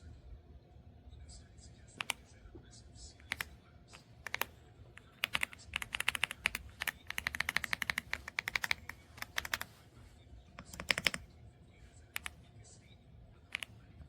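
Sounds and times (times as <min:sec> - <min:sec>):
mechanical keyboard typing: 0:02.0 - 0:02.2, 0:03.2 - 0:03.5, 0:04.2 - 0:09.7, 0:10.6 - 0:11.2, 0:13.5 - 0:13.7.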